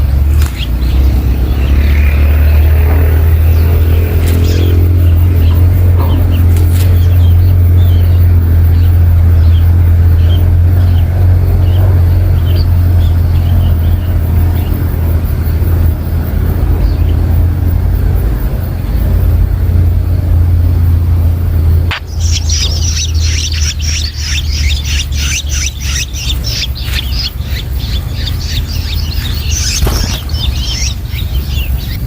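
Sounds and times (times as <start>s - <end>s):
low rumble: 0.0s - 32.0s
faint high bird chirps: 21.9s - 32.0s.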